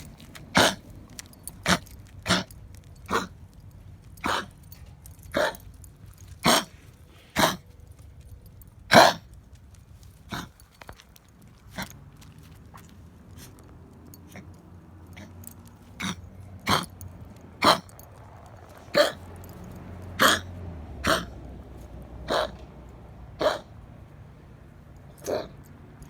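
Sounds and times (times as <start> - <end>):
dog coughing: 0.5 - 0.8, 1.6 - 2.5, 3.1 - 3.3, 4.2 - 4.5, 5.4 - 5.6, 6.4 - 6.7, 7.4 - 7.6, 8.9 - 9.2, 16.0 - 16.9, 17.6 - 17.9, 18.9 - 19.2, 20.2 - 21.3, 22.3 - 22.6, 23.4 - 23.7, 25.2 - 25.6.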